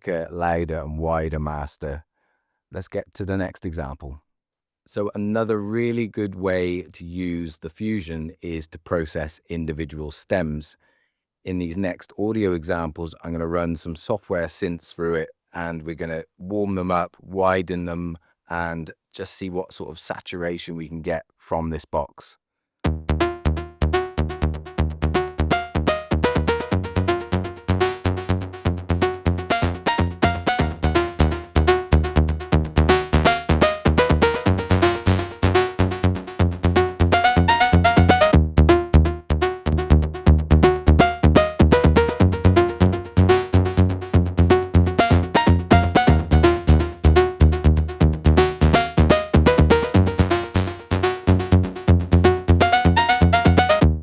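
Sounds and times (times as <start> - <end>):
electronic music with deep bass: 22.9 - 54.0.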